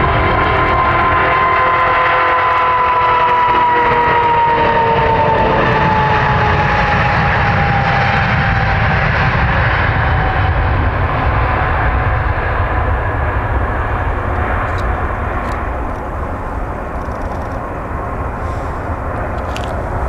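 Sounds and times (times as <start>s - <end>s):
jet engines with high whine: 0.0s - 20.0s.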